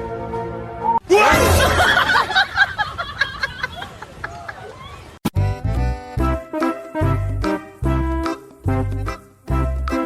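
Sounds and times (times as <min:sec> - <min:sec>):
upbeat background music: 0:05.4 - 0:10.0.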